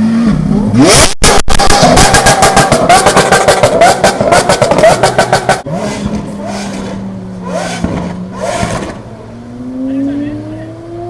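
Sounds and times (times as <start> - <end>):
car engine revving: 0.0 - 11.0
exhaust crackles and pops: 0.8 - 9.1.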